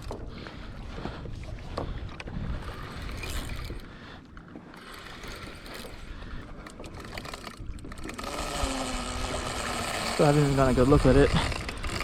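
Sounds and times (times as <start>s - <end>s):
wind noise: 0.0s - 4.0s, 5.4s - 12.0s
water noise: 0.0s - 12.0s
fishing reel clicking: 2.6s - 3.9s, 4.7s - 12.0s.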